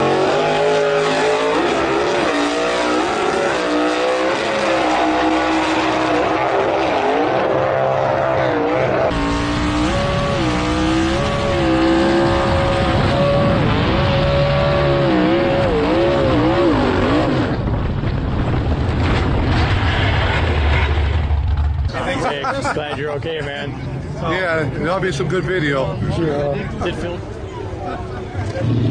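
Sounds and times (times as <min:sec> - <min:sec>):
engine running at high revs: 0:00.0 - 0:21.9, 0:28.4 - 0:28.9.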